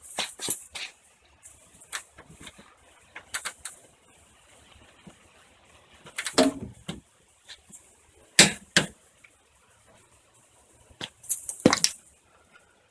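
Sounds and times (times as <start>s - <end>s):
sharp knocks and clatters: 11.0s - 12.0s.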